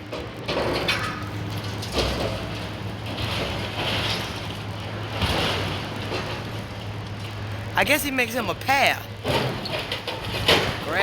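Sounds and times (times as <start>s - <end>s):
debris crashing and scraping: 0.1s - 6.6s, 9.2s - 11.0s.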